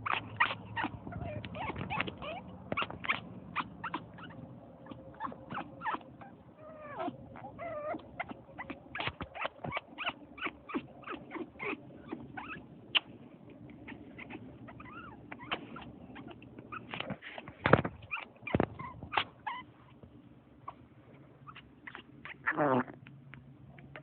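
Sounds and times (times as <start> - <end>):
parrot squeaking and yipping: 0.0 - 13.1, 13.8 - 17.0, 18.0 - 19.7, 21.4 - 22.8
parrot whining calls: 0.0 - 13.1, 13.8 - 16.9.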